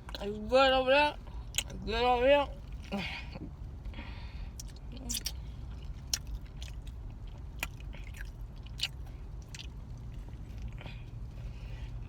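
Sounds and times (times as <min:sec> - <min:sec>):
steady low hum: 0:00.0 - 0:12.0
chewing with wet mouth sounds: 0:01.3 - 0:01.8, 0:02.5 - 0:12.0
sharp food crunches: 0:06.0 - 0:09.8.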